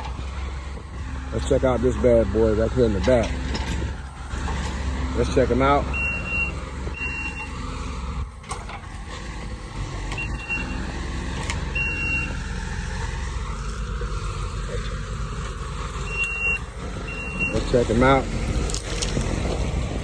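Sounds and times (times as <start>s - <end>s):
heavy diesel engine running: 0.0s - 20.0s
reverse alarm beeps: 5.9s - 7.5s, 10.2s - 10.8s, 11.8s - 12.3s, 16.1s - 17.7s.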